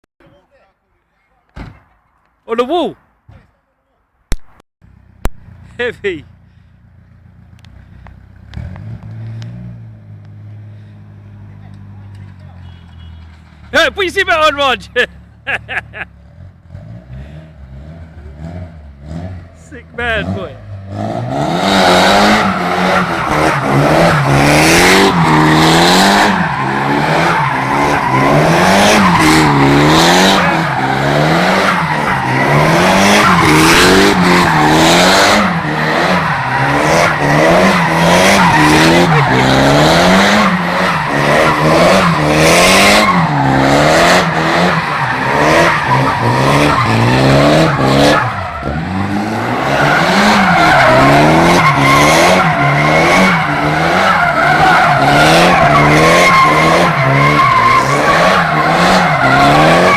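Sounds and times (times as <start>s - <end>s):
tyre squeal and skidding: 11.4s - 14.7s, 21.2s - 59.9s
car engine revving hard: 15.6s - 59.9s.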